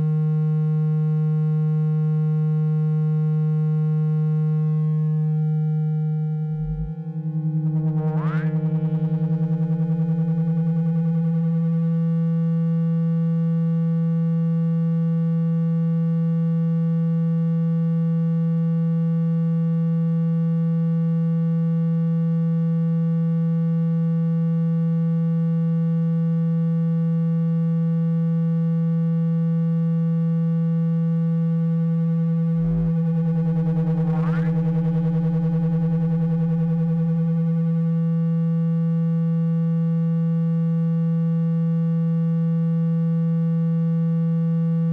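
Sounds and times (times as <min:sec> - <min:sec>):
low electronic tone: 0:03.5 - 0:12.9, 0:31.3 - 0:39.2.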